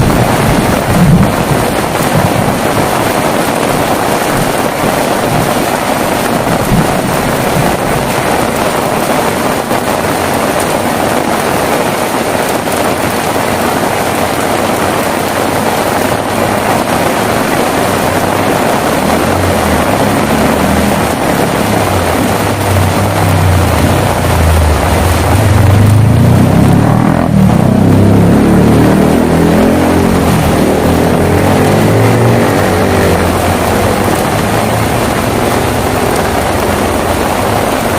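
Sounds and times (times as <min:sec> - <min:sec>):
low rumble: 0:00.0 - 0:09.6
heavy rain falling: 0:00.0 - 0:37.9.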